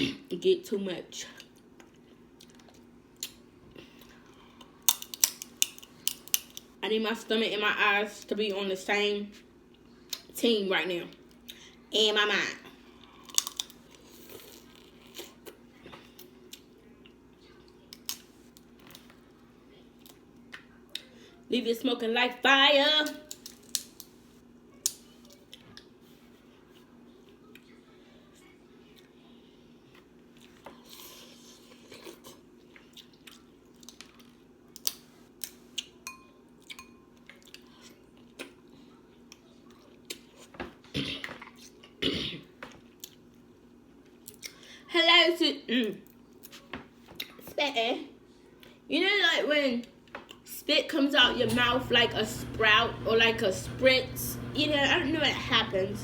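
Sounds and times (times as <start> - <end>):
crab shell cracking: 4.8 - 6.7, 13.2 - 13.8, 23.2 - 24.2
wet chewing and mouth smacks: 31.9 - 36.0.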